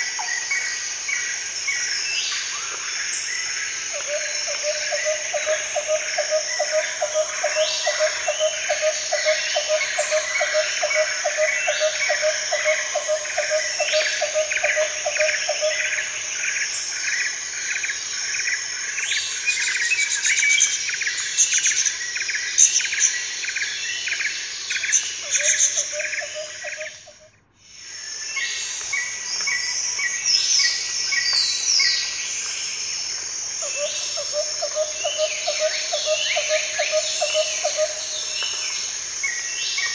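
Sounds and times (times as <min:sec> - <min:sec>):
insects pulsing low trill: 0:00.0 - 0:39.9.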